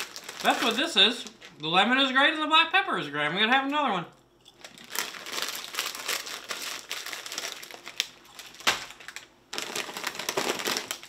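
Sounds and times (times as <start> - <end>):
chip bag crinkling: 0.0 - 2.0, 4.5 - 11.0.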